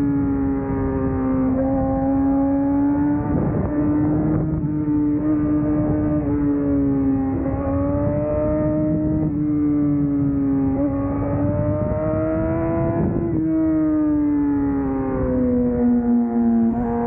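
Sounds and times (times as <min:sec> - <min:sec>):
motorcycle engine at high revs: 0:00.0 - 0:17.0
wind rush: 0:10.7 - 0:13.5.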